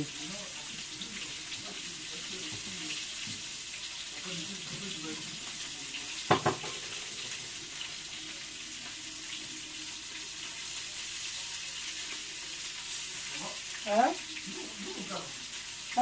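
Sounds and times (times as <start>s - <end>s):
tap running into sink: 6.2s - 7.6s
loud knock: 6.3s - 6.8s.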